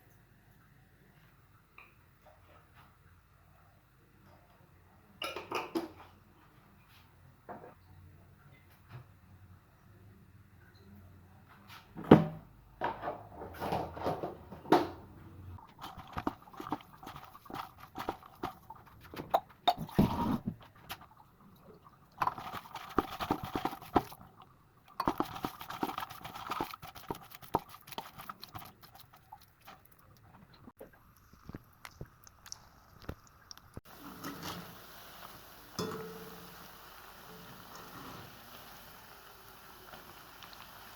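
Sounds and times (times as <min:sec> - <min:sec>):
steady hiss: 0:33.9 - 0:40.9.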